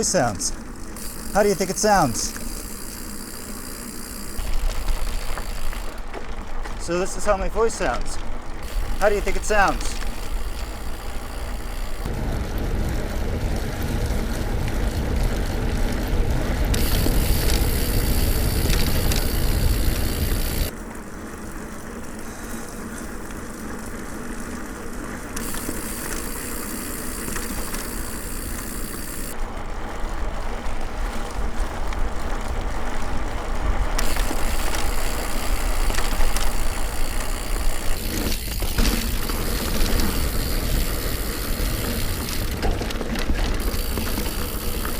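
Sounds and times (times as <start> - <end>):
bike tyre and trail noise: 0.0 - 44.9
wind buffeting microphone: 28.1 - 42.7.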